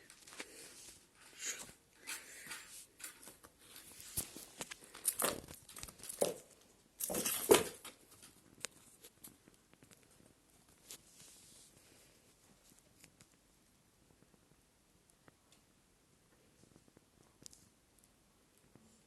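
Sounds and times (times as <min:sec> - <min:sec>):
rustling and crinkling: 0:00.0 - 0:14.6.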